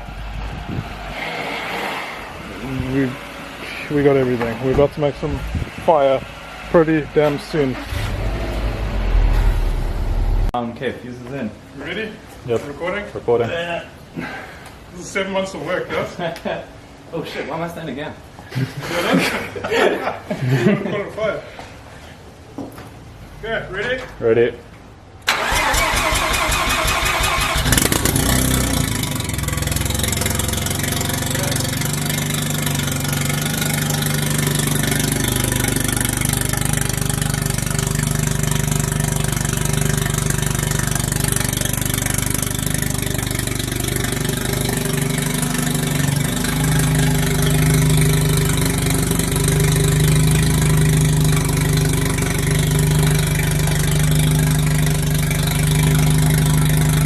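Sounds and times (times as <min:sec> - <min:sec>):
rotary engine cranking and idling: 0:00.0 - 0:10.6, 0:25.2 - 0:57.0.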